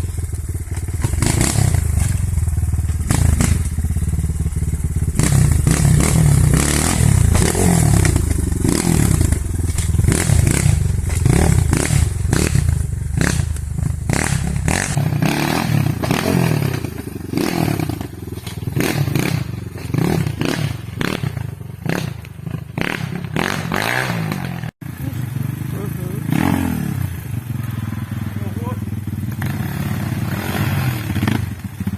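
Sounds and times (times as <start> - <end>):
motorcycle engine revving: 0.0 - 31.9
bike clattering over rough ground: 16.8 - 20.5.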